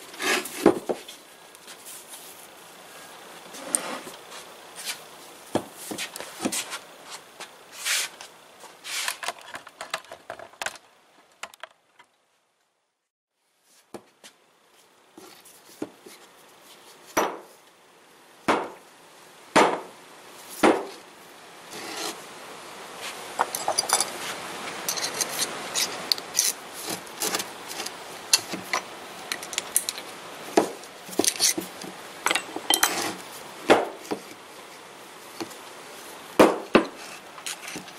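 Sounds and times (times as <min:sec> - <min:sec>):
metal clinks and scrapes: 0:23.4 - 0:30.1, 0:31.1 - 0:33.2, 0:36.9 - 0:37.9.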